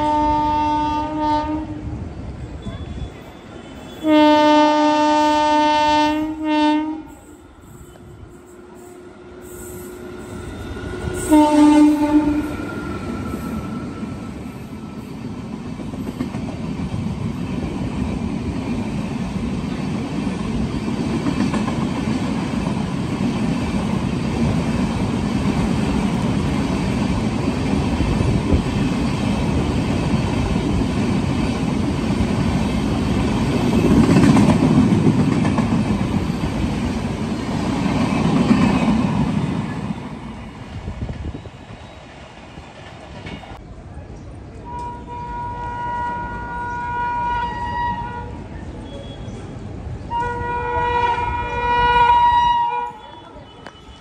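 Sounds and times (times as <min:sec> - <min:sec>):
train horn: 0:00.0 - 0:01.9, 0:02.6 - 0:15.0, 0:44.6 - 0:49.4, 0:50.1 - 0:54.0
train rumble and wheel clatter: 0:00.0 - 0:54.0.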